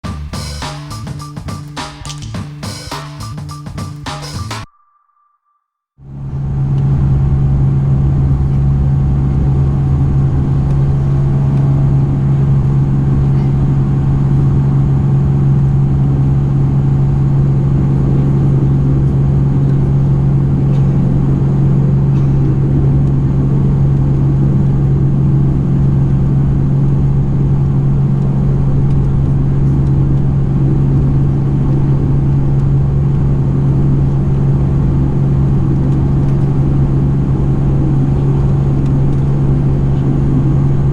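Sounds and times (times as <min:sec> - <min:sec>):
turboprop engine drone in cabin: 0:06.1 - 0:40.9.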